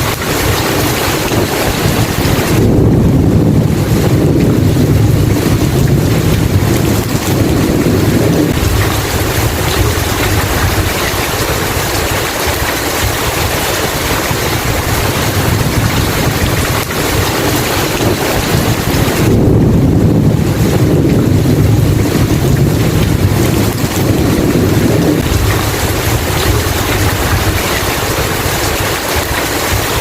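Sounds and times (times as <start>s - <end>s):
heavy rain pouring: 0.0s - 30.0s
thunder rumbling: 0.0s - 30.0s.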